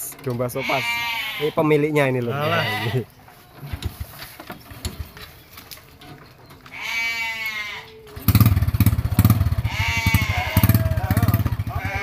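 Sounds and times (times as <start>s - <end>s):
sheep bleating: 0.5s - 3.1s, 6.7s - 8.0s, 9.6s - 12.0s
motorcycle engine starting and running: 3.6s - 5.4s, 8.1s - 12.0s.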